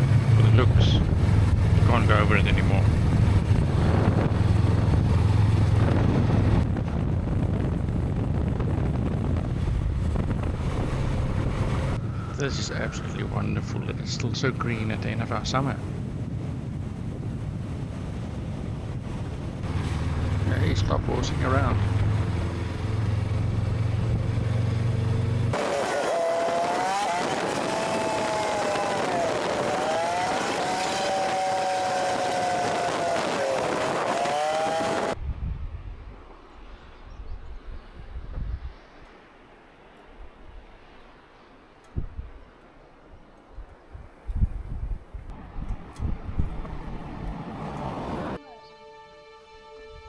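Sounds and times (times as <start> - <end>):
motorcycle engine humming: 0.0 - 35.2
wind rushing over microphone: 0.0 - 39.1, 41.9 - 48.4
drone propellers whining: 8.3 - 16.3, 18.4 - 35.2
motorcycle engine running: 19.6 - 35.2.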